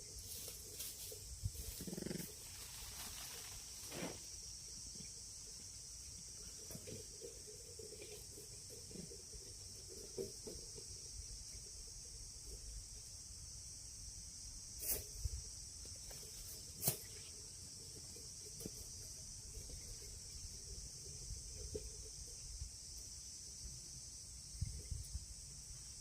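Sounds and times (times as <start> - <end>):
insect chirring: 0.0 - 26.0
rough animal growl: 1.7 - 2.4.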